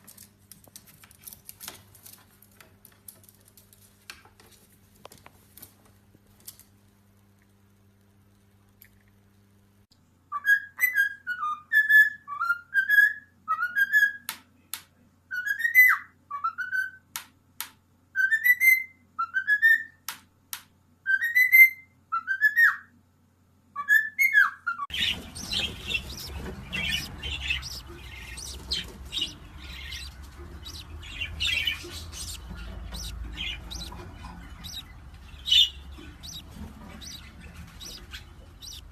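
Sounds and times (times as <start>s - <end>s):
pet bird whistling: 21.1s - 22.9s, 23.8s - 38.9s
bird chirping: 23.8s - 38.9s.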